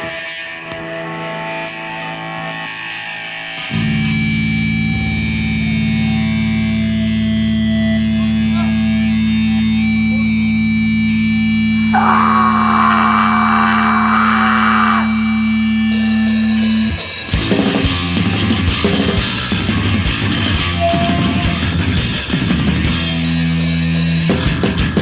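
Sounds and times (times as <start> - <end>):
electric guitar low note: 0.0 - 12.8, 14.8 - 24.9.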